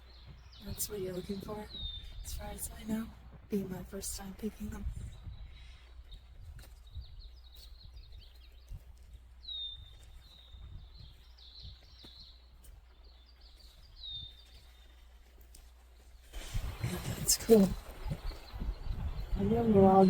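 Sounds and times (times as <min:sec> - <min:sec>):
steady low rumble: 0:00.0 - 0:08.1, 0:16.4 - 0:20.0
songbird singing: 0:00.0 - 0:20.0.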